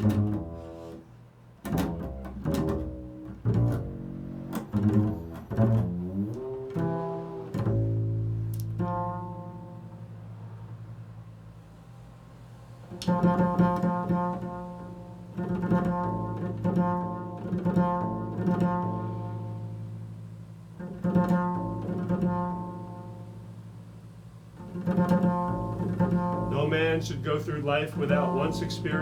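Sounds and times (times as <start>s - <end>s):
stringed instrument chords: 0.0s - 1.0s, 1.6s - 11.6s, 12.9s - 29.0s
steady low drone: 24.6s - 29.0s.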